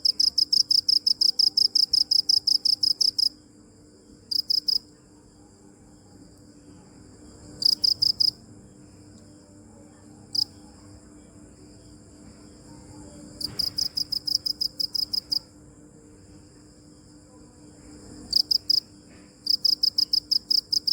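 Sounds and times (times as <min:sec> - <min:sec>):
cricket chirping in pulsed bursts: 0:00.0 - 0:20.9.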